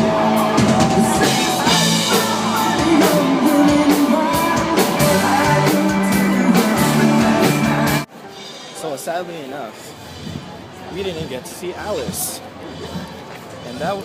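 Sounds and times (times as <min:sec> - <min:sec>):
electric guitar: 0:00.0 - 0:08.0
drum kit beat: 0:00.0 - 0:08.6.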